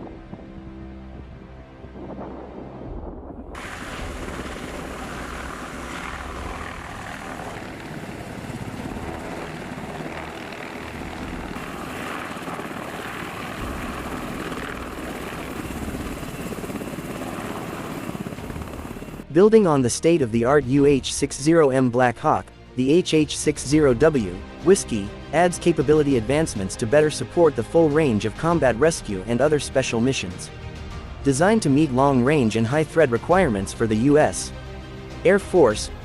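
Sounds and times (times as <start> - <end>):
helicopter rotor and engine: 3.6 - 19.3.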